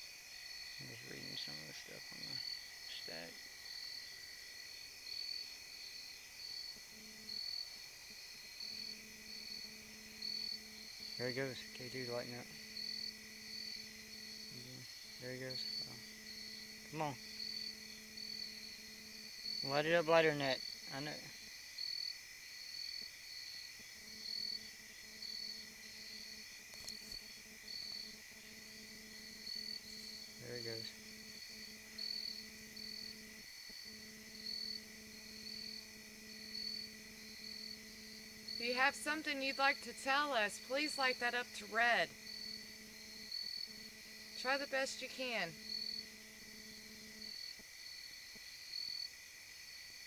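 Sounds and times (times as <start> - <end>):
insect trill: 0.0 - 50.0
insects chirping: 0.0 - 50.0
faint low hum: 0.4 - 21.7, 22.6 - 47.5
small clicks: 26.7 - 27.2.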